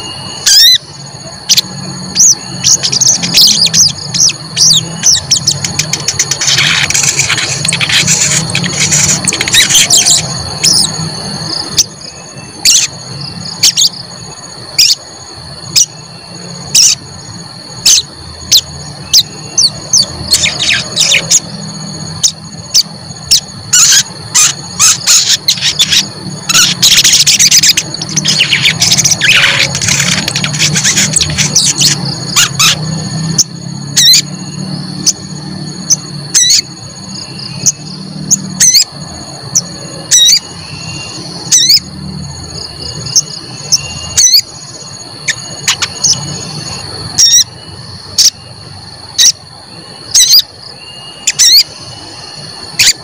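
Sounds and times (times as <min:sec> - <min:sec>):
steady high tone: 0:00.0 - 0:12.6.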